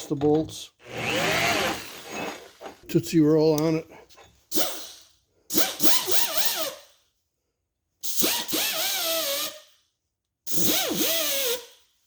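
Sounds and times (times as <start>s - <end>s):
die grinder whining on metal: 0.8s - 2.8s.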